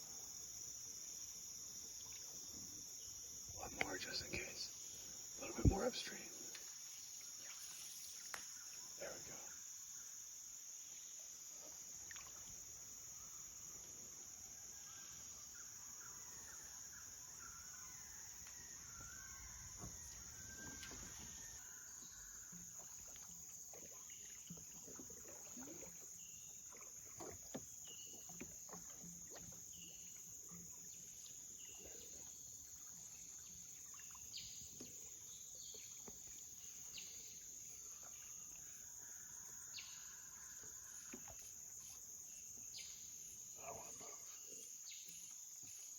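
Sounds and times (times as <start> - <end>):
chorus of jungle insects: 0.0 - 45.9
faint bird chirps: 3.5 - 6.6, 7.4 - 10.1.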